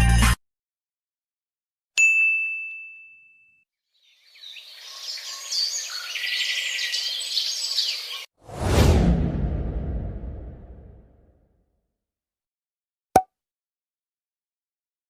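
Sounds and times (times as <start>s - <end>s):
birds chirping: 4.0s - 8.3s.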